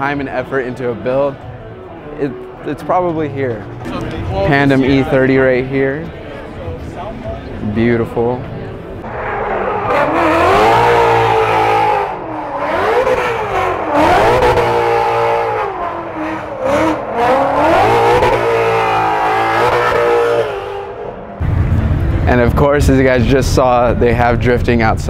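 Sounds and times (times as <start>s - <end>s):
car engine revving hard: 9.1s - 21.3s.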